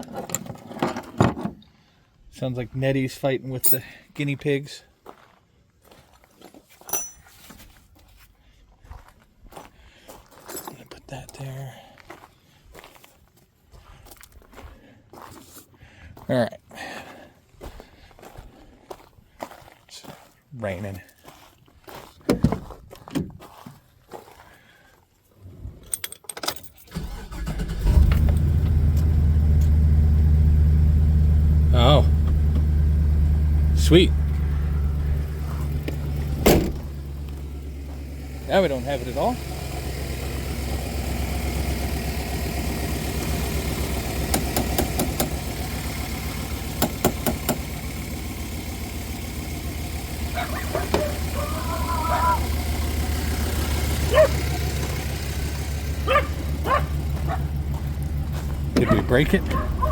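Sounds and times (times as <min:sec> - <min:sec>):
keys jingling: 0:06.9 - 0:07.3
van engine starting and idling: 0:26.8 - 0:59.9
knocks: 0:46.8 - 0:47.6.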